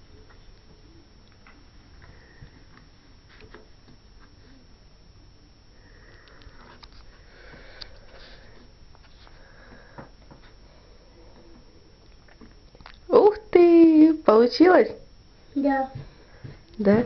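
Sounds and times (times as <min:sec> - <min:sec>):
breathing and sniffing: 0:05.8 - 0:11.4.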